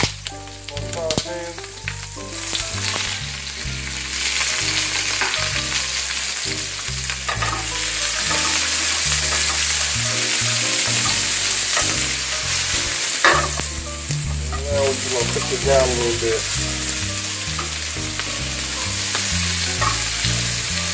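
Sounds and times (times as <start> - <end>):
vegetables sizzling in a frying pan: 0.0 - 20.9.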